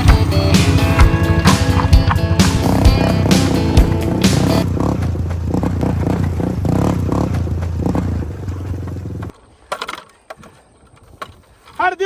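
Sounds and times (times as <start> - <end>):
three-wheeler engine under load: 0.0 - 11.9
sharp knocks: 0.9 - 3.5.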